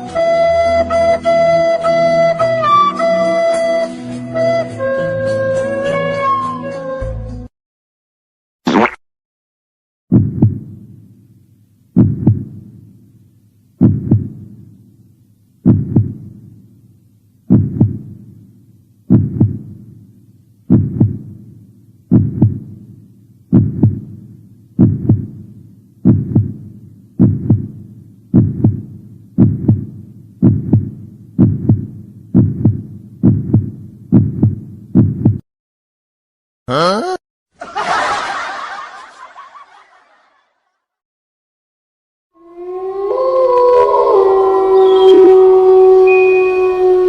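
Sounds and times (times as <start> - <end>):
heartbeat thumps: 10.1 - 10.8, 12.0 - 12.7, 13.8 - 14.5, 15.6 - 16.4, 17.5 - 18.2, 19.1 - 19.8, 20.7 - 21.4, 22.1 - 22.8, 23.5 - 24.2, 24.8 - 35.4.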